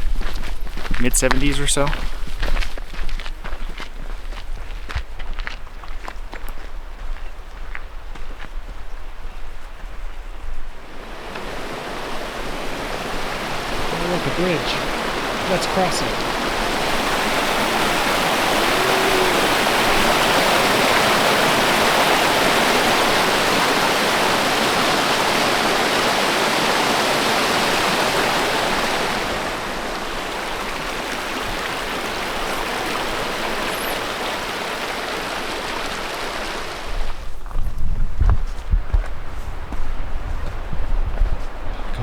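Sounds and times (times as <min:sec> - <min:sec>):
stream rushing: 0:10.8 - 0:37.4.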